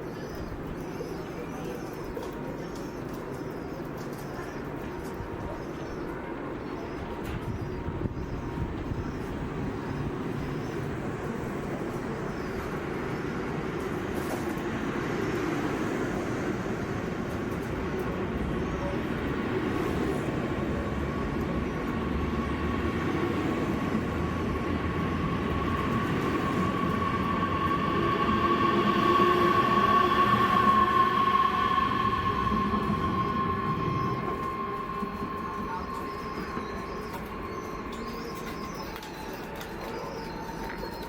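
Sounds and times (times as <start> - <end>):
train running noise: 0.0 - 41.0
steady high tone: 26.6 - 39.6.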